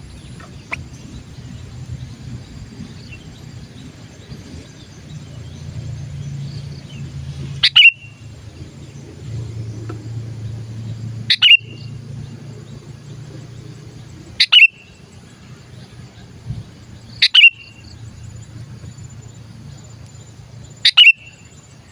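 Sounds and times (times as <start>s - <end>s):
bird calling: 0.0s - 21.9s
low steady hum: 0.0s - 21.9s.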